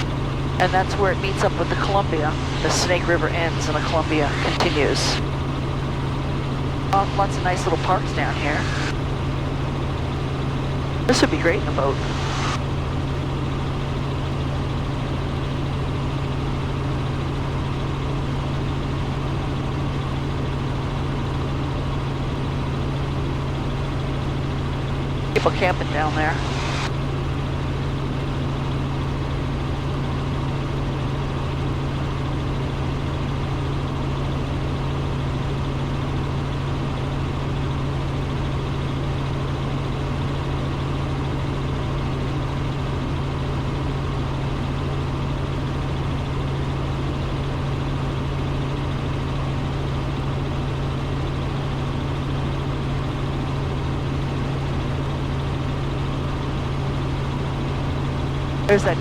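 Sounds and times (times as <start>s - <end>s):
helicopter engine and rotors droning: 0.0s - 59.0s.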